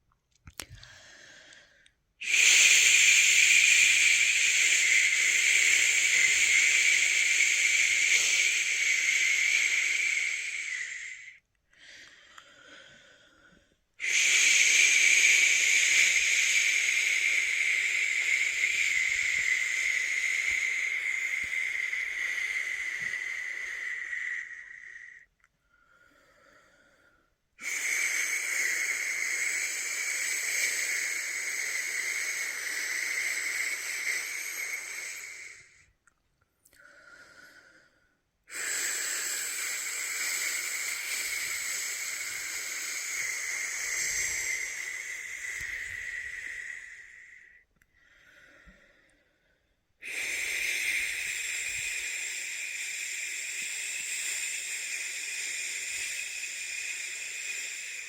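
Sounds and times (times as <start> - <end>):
man shushing: 2.2 - 11.4, 14.0 - 25.2, 27.6 - 35.8, 38.6 - 47.5.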